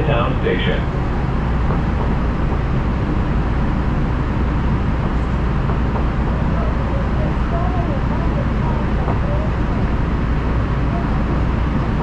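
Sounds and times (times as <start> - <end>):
rail car rumbling: 0.0 - 12.0.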